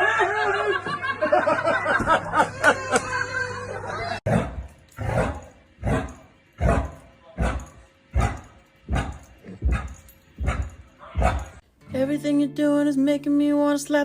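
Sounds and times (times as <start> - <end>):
laughter: 0.0 - 4.2
dog barking: 4.3 - 11.6.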